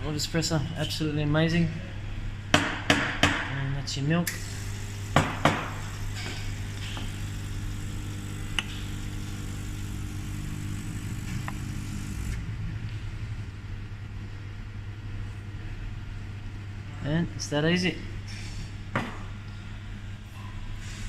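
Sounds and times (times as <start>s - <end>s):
espresso machine hiss: 4.3s - 12.4s
espresso machine humming: 4.3s - 12.4s.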